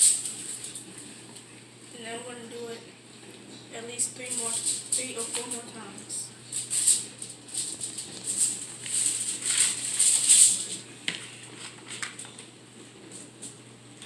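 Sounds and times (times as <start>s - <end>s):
aluminium foil crinkling: 0.0s - 1.6s, 3.9s - 13.6s.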